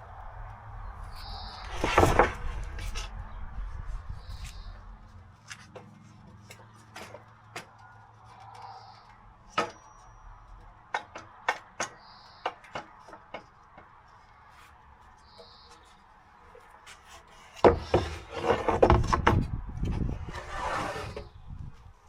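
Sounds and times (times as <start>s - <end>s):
taps and clicks of woodwork: 10.9s - 14.0s.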